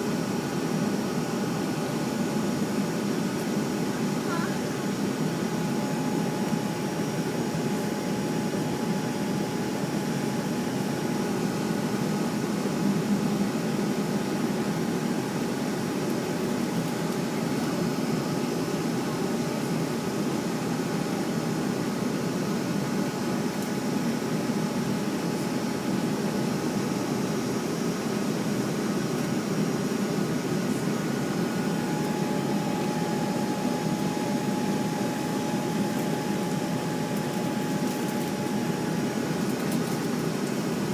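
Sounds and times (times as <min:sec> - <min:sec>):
jet engine and cabin air rush: 0:00.0 - 0:40.9
thin whine tones: 0:30.8 - 0:39.2.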